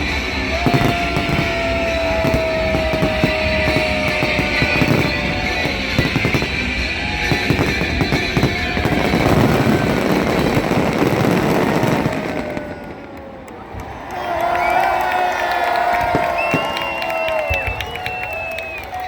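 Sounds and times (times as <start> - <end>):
music playing: 0.0 - 12.4
fireworks bangs and crackles: 0.0 - 14.0, 15.7 - 19.0.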